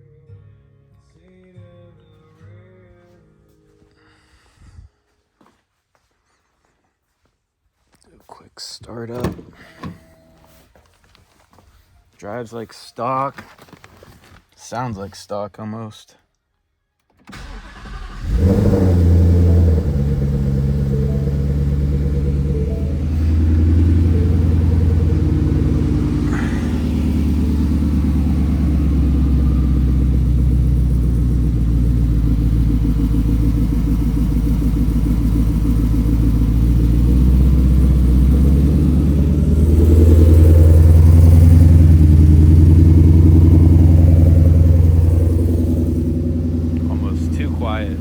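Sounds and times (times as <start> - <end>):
vee eight engine running: 17.3 - 48.0.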